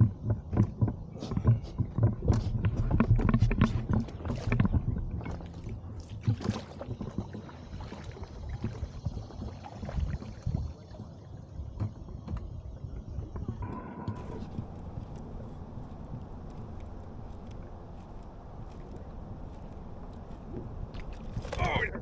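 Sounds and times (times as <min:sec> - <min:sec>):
paddle strokes in water: 0:14.2 - 0:22.0.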